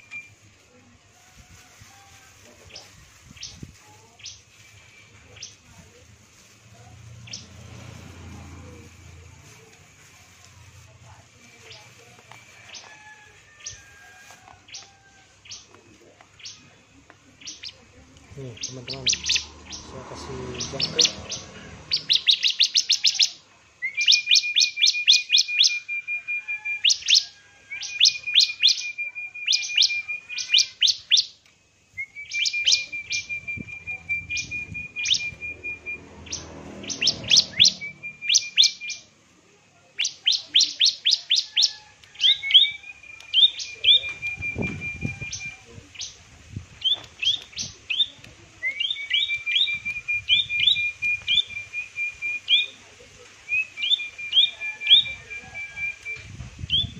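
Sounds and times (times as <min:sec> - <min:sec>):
bird calling: 0:17.4 - 0:31.4, 0:32.0 - 0:39.1.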